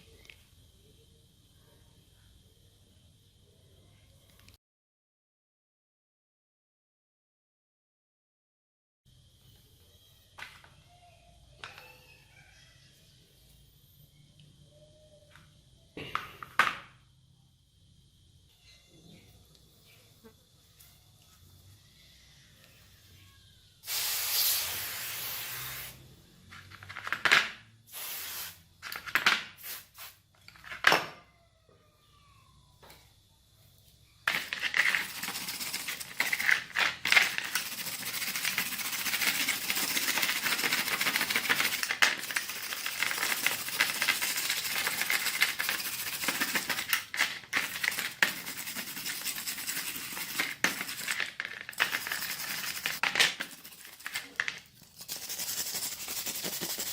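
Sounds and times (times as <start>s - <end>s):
short hissing bursts: 23.8s - 26.1s, 27.9s - 28.7s, 29.6s - 30.2s.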